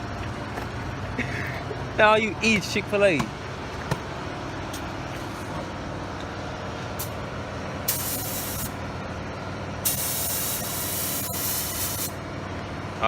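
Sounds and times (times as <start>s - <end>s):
steady low hum: 0.0s - 13.0s
pressurised air hissing: 7.9s - 8.7s, 9.8s - 12.2s.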